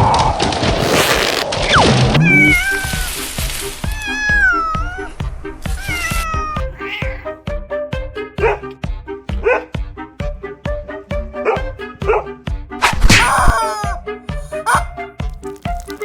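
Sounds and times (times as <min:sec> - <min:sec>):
cat meowing: 0:02.2 - 0:03.2, 0:03.9 - 0:05.1, 0:05.7 - 0:07.4, 0:13.0 - 0:14.9
music with steady beat: 0:03.2 - 0:16.0.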